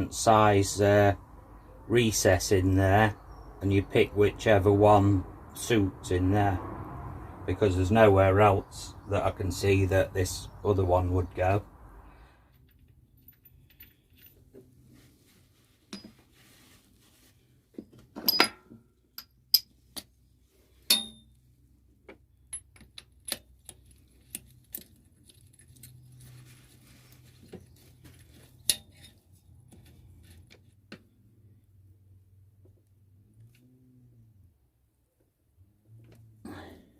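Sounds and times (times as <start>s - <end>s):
metal tools clinking on workbench: 18.2s - 19.7s.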